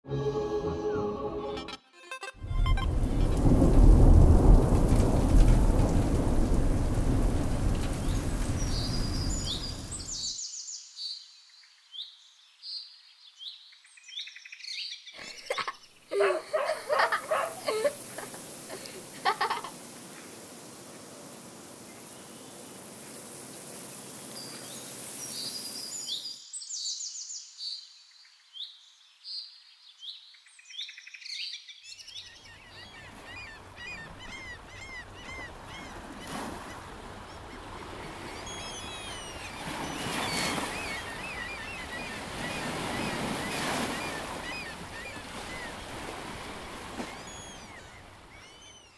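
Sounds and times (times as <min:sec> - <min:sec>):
small birds chirping: 0:07.9 - 0:19.2, 0:21.8 - 0:48.9.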